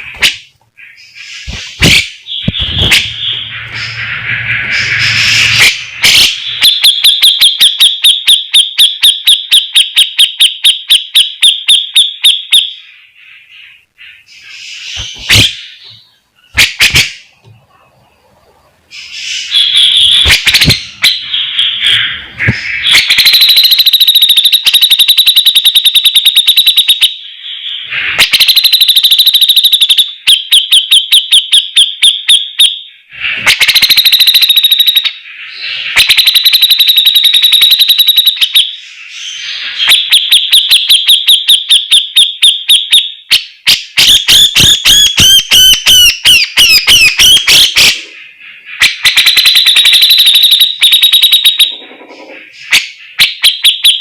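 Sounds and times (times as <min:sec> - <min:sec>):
bird singing rapid rattling notes: 0:18.9 - 0:30.9.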